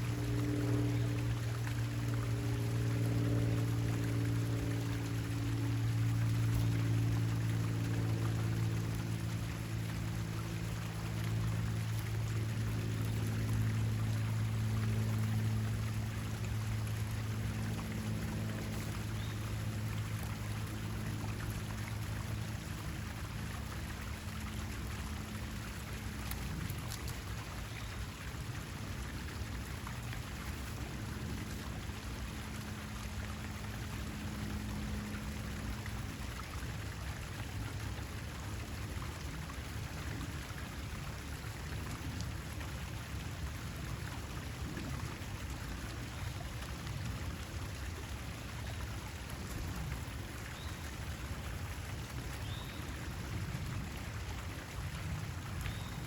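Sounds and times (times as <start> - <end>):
low hum: 0.0 - 56.0.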